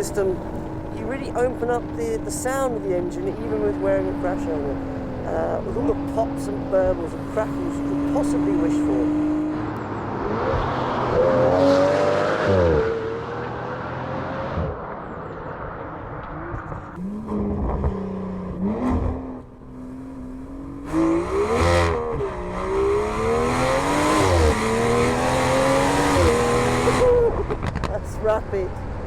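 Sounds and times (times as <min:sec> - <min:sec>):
car engine accelerating hard: 0:00.0 - 0:28.0
exhaust cracks: 0:14.5 - 0:29.0.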